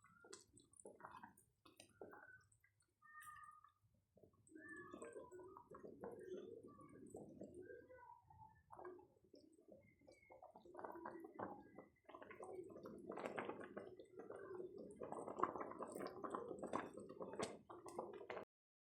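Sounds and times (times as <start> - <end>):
wet squelching and gurgling: 8.7 - 18.4.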